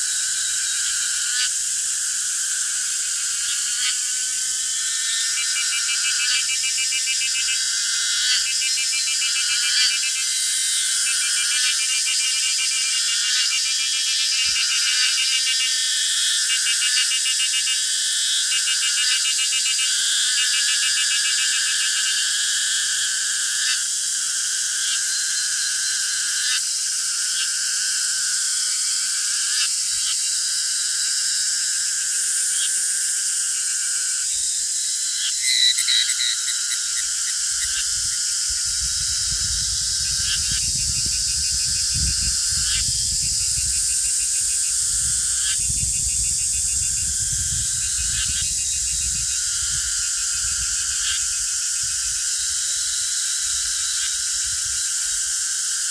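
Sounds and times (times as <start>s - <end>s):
cicadas singing: 0.0s - 55.9s.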